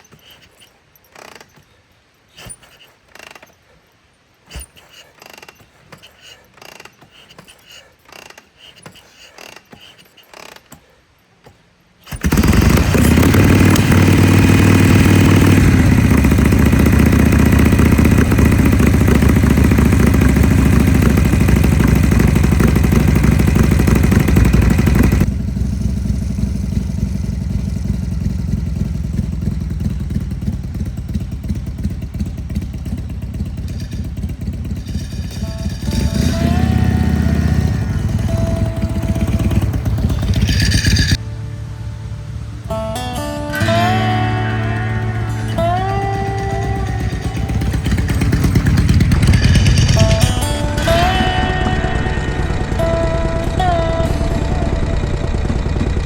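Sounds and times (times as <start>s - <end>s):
motorcycle engine starting and running: 0.0s - 3.6s, 4.5s - 56.0s.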